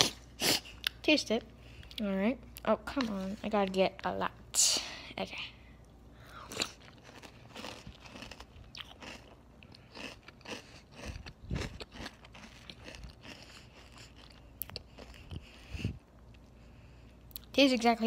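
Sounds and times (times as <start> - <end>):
person chewing crunchy cereal: 6.2 - 16.5.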